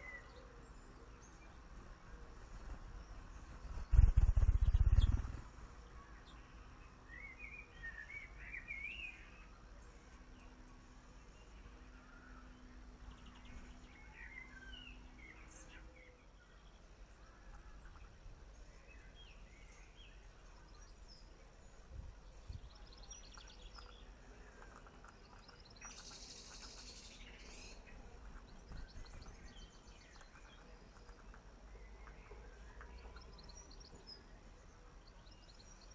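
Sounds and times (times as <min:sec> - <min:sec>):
small birds chirping: 0:00.0 - 0:35.9
steady low rumble: 0:01.4 - 0:06.9.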